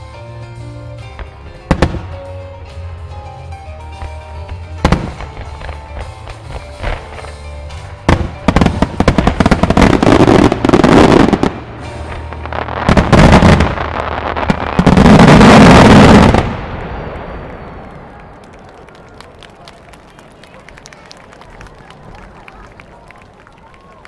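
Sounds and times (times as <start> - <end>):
firework bangs: 0.8 - 20.1.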